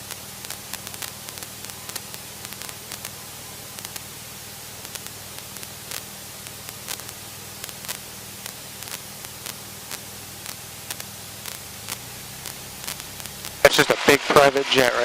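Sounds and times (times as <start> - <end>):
intercom hiss: 0.0 - 15.0
sharp clicks: 4.9 - 14.4.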